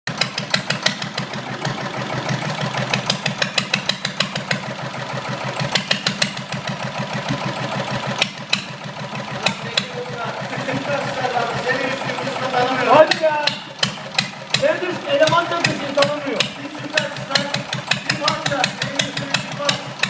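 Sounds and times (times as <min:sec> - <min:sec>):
exhaust popping: 0:00.1 - 0:20.0
motorcycle engine idling: 0:00.1 - 0:20.0.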